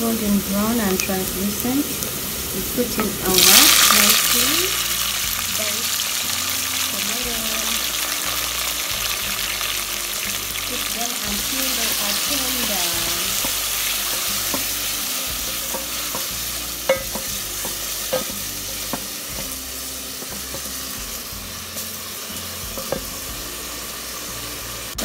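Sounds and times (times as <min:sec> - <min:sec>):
vegetables sizzling in hot oil: 0:00.0 - 0:25.0
wooden spoon knocking on pot: 0:15.5 - 0:19.5, 0:22.8 - 0:23.2.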